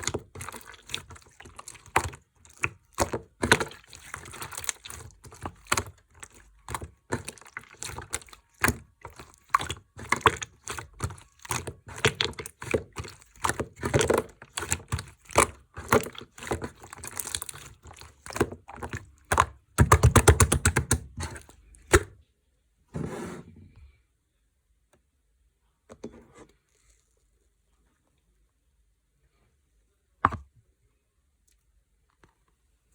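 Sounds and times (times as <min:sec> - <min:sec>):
slime squish: 0:00.0 - 0:22.2.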